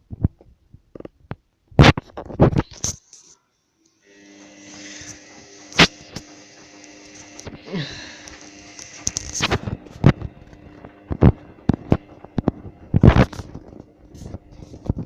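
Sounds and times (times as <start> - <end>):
steady machine hum: 4.0 - 15.0
water filling hiss: 4.1 - 9.7.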